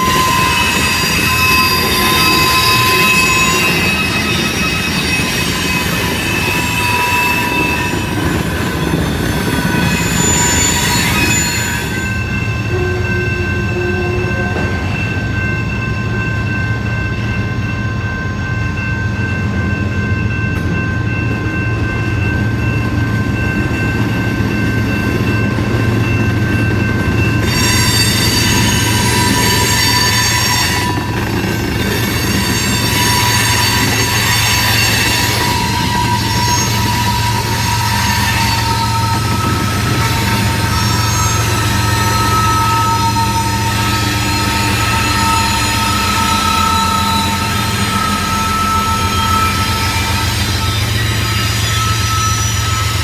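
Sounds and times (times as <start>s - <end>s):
high-pitched wheel squeal: 0.0s - 15.0s, 27.4s - 53.0s
freight train rumbling past: 0.0s - 53.0s.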